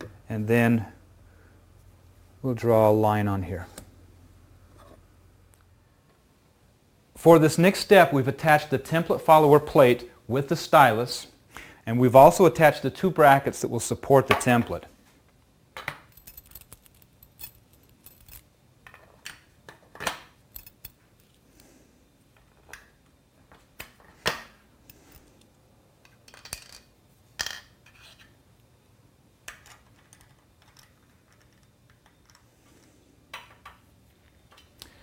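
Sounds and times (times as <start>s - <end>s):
metal parts clinking and knocking: 15.8s - 21.4s, 26.0s - 28.2s.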